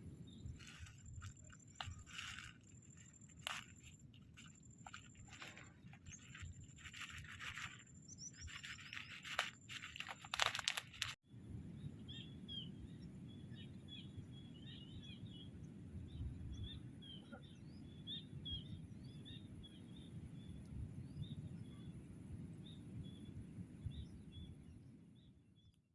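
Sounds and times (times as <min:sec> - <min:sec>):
crunching and rustling: 0:00.0 - 0:11.2
small birds chirping: 0:00.0 - 0:11.2, 0:11.8 - 0:25.7
low outdoor rumble: 0:00.0 - 0:17.2.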